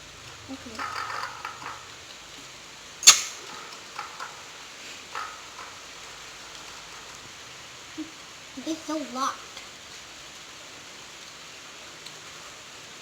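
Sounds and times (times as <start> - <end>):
sharp click: 3.0 - 3.6.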